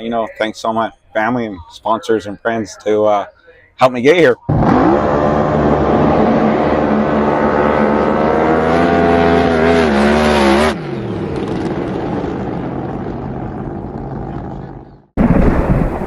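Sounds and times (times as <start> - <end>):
drag boat engine running loud: 4.5 - 10.0
low quiet rumble: 13.2 - 16.0.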